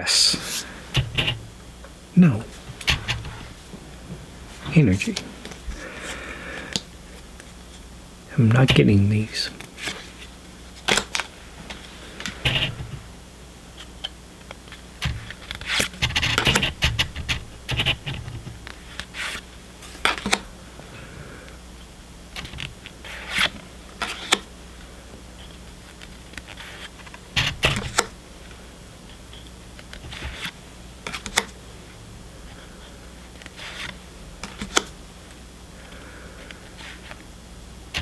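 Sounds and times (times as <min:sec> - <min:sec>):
trading cards scraping and clicking: 0:00.3 - 0:01.5, 0:02.4 - 0:07.5, 0:08.5 - 0:13.0, 0:14.7 - 0:20.5, 0:22.4 - 0:24.5, 0:29.3 - 0:31.6, 0:32.5 - 0:35.0.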